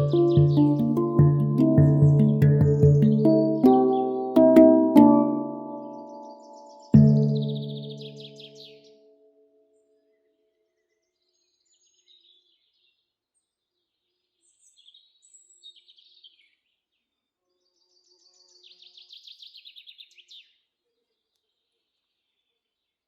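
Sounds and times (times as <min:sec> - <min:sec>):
bird trill: 0:05.8 - 0:08.8
faint birdsong chirps and whistles: 0:14.4 - 0:16.7.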